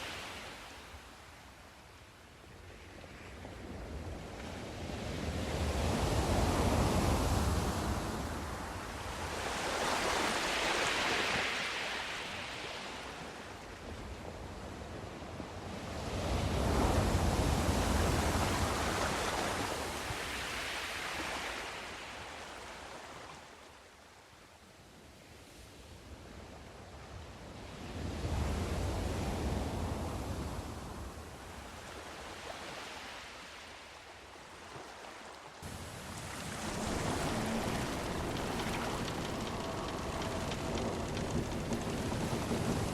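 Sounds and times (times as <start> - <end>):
sea waves surging: 4.2 - 13.5, 35.0 - 42.9.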